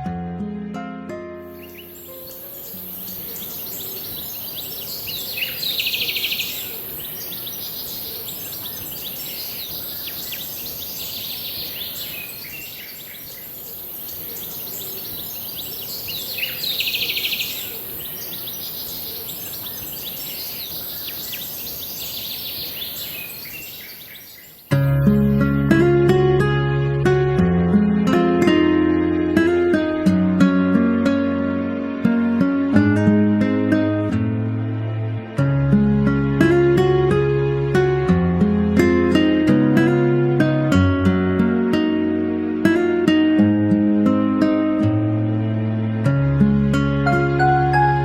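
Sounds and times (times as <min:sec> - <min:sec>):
steady high hiss: 0:01.4 - 0:25.9
loud rapid bird trill: 0:01.5 - 0:25.7
small birds chirping: 0:01.5 - 0:25.9.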